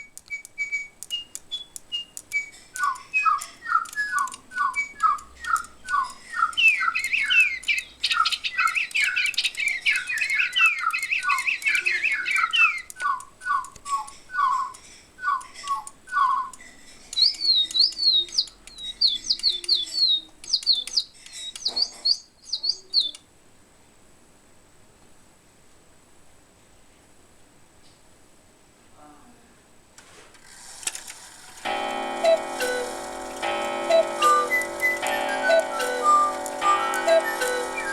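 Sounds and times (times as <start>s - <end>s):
cuckoo clock birdsong chirps: 0.0s - 23.3s, 31.6s - 37.9s.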